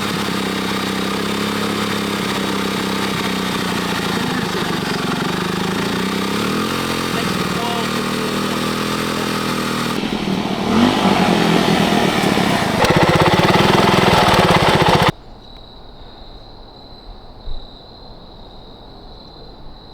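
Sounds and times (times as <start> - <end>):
single-cylinder engine running: 0.0 - 15.1.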